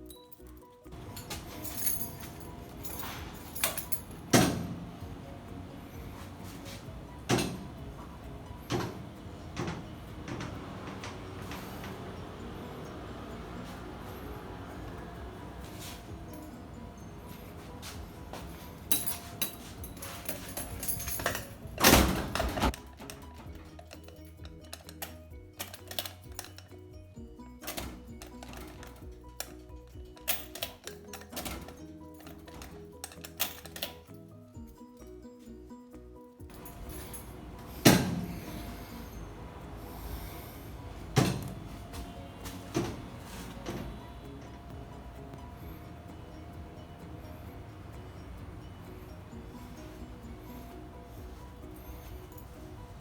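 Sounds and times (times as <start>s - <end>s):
metal door rattling: 0.9s - 26.6s, 27.6s - 29.1s, 30.2s - 34.0s, 36.5s - 49.9s
door clicks: 1.0s - 13.9s, 40.7s - 45.4s.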